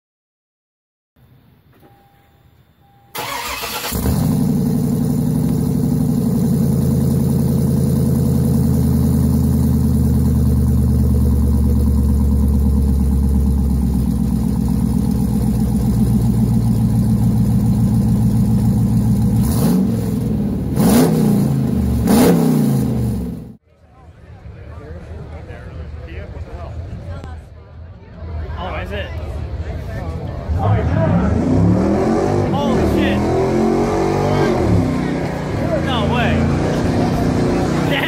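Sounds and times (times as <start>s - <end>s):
car engine idling and revving: 2.8s - 23.6s, 30.3s - 38.0s.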